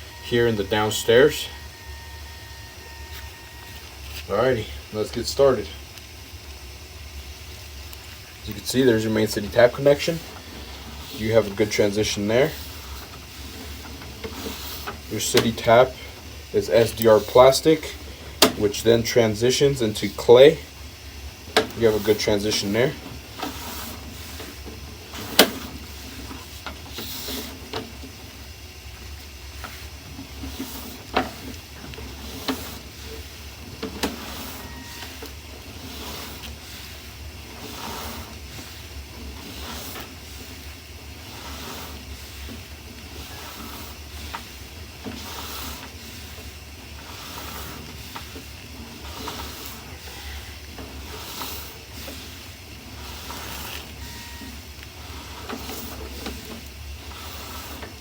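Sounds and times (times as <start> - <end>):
steady low hum: 0.0 - 58.0
push rod sliding in pipe: 37.6 - 38.8, 39.4 - 40.5, 41.2 - 52.4, 55.2 - 58.0.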